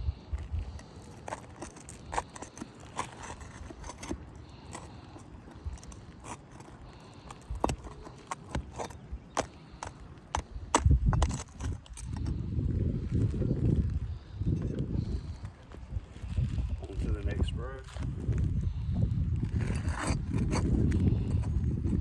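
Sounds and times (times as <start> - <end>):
metal tool prying nails: 0.8 - 12.3.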